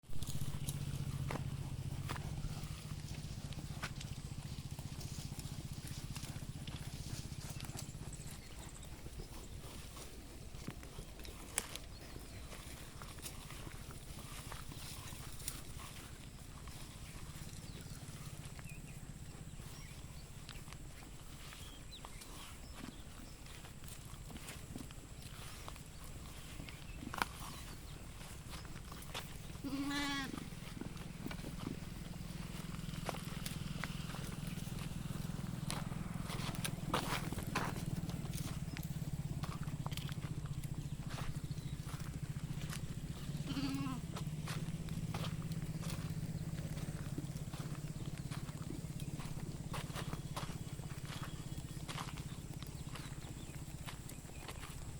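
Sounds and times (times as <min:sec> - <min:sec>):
steady low hum: 0:00.0 - 0:54.9
sheep hooves clattering: 0:00.1 - 0:54.9
sheep bleating: 0:29.6 - 0:30.5, 0:43.4 - 0:44.2.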